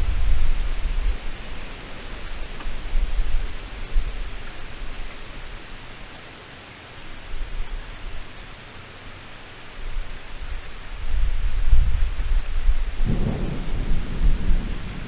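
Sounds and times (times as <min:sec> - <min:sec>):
low rumble of thunder: 0:00.0 - 0:04.4, 0:11.0 - 0:15.0
heavy rain hissing: 0:00.0 - 0:15.0.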